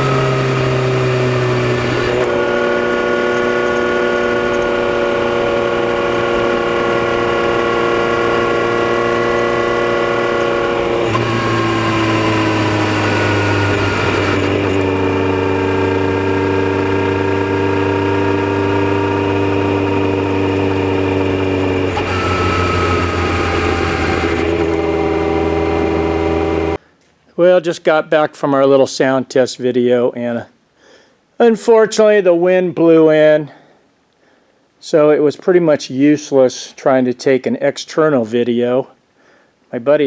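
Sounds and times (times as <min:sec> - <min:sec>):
motorcycle engine cruising: 0:00.0 - 0:26.8.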